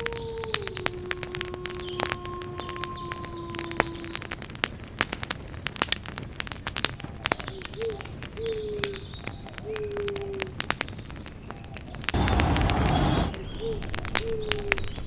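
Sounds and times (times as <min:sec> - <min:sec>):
wood fire crackling and popping: 0:00.0 - 0:15.0
hiss of burning: 0:12.2 - 0:13.5
bird calling: 0:12.2 - 0:14.9.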